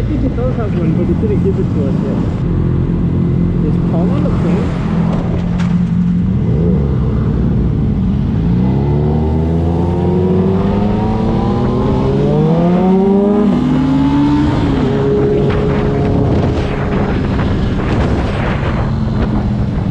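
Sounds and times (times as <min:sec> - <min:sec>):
motorcycle engine accelerating: 0:00.0 - 0:19.9
low rumble: 0:14.2 - 0:19.9.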